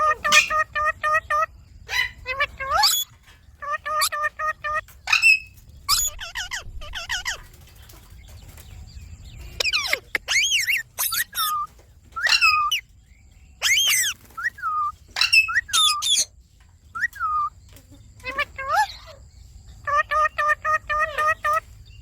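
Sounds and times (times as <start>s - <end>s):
parrot shrill calls: 0.0s - 7.5s, 9.6s - 12.8s, 13.6s - 16.3s, 17.0s - 17.5s, 18.2s - 19.2s, 19.8s - 21.6s.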